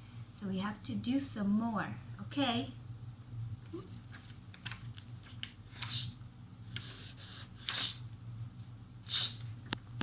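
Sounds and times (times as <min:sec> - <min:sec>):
woman making hissing ch sounds: 0:05.8 - 0:06.2, 0:06.9 - 0:08.1, 0:09.0 - 0:09.5.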